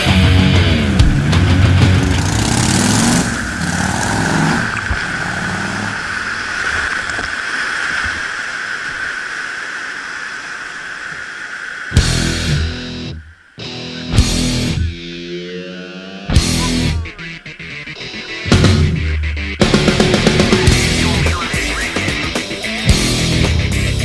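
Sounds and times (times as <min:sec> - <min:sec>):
loud music: 0:00.0 - 0:04.1, 0:16.3 - 0:24.0
vehicle engine revving: 0:00.0 - 0:06.4
road or wind noise: 0:00.0 - 0:15.0.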